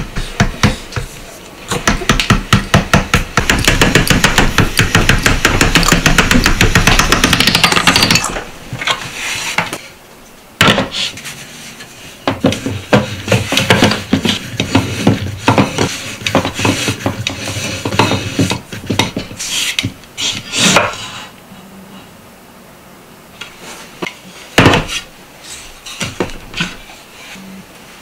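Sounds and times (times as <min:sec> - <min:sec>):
wooden dowel knocking on stand: 0:01.8 - 0:08.1
dough sheet rubbing: 0:09.0 - 0:09.8, 0:10.9 - 0:21.3.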